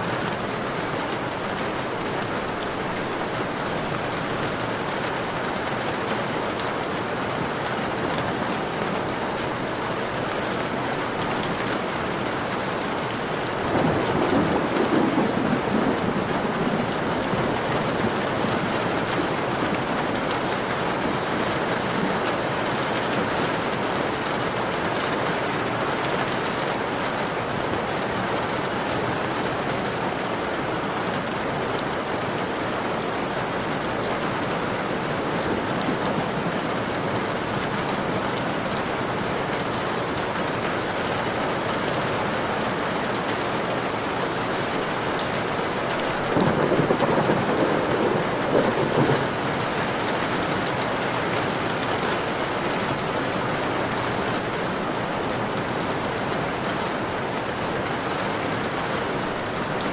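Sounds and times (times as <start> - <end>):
rain on a window pane: 0.0 - 59.9
low rumble of thunder: 13.6 - 19.8, 46.3 - 50.0.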